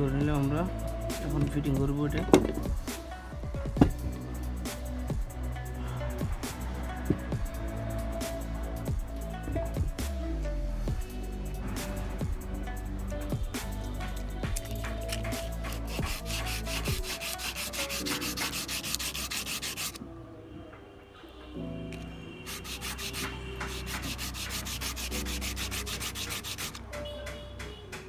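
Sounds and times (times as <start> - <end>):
rapid sanding strokes: 15.1 - 20.0, 22.5 - 26.8.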